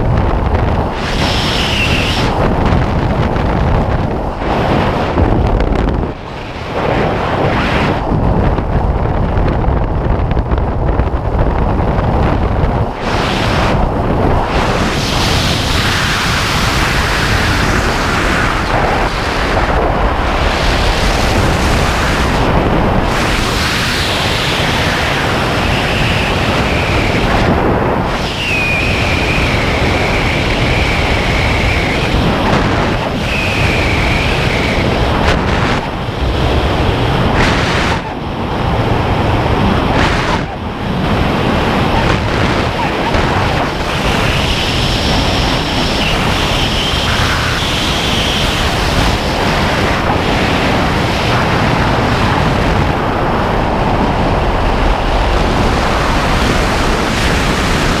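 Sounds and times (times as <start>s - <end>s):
wind roaring over microphone: 0.0s - 58.0s
thin high whistle: 28.3s - 29.5s.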